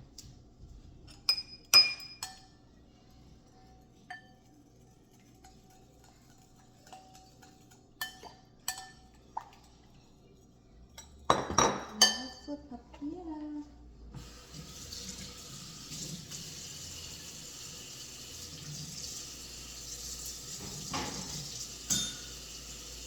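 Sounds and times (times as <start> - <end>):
dishes and utensils clinking: 1.1 - 2.6, 3.5 - 9.7, 10.9 - 12.5, 20.5 - 22.8.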